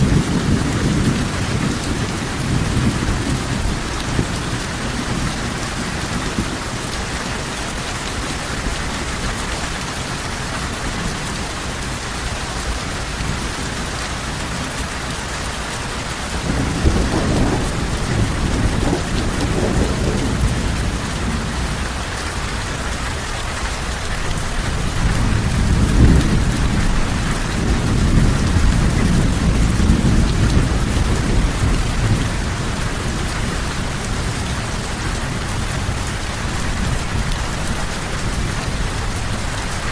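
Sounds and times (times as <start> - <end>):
low rolls of thunder: 0.0 - 9.2, 16.2 - 22.1, 24.3 - 39.9
heavy rain falling: 0.0 - 39.9.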